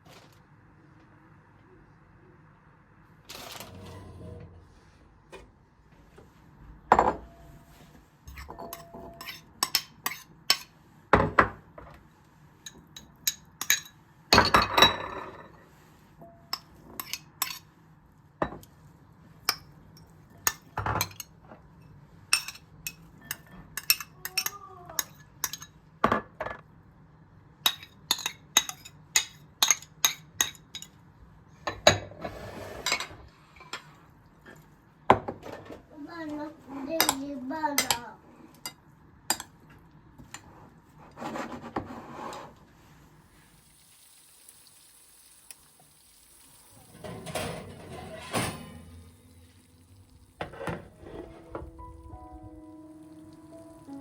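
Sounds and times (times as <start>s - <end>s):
dishes and cutlery clinking: 8.3s - 11.6s, 12.7s - 15.6s, 16.2s - 17.7s, 19.5s - 21.7s, 22.3s - 26.6s, 27.7s - 31.0s, 46.8s - 49.6s, 50.4s - 52.1s.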